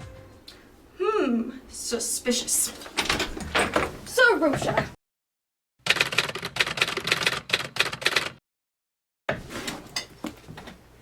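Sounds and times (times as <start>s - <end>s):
computer keyboard typing: 5.9s - 8.4s.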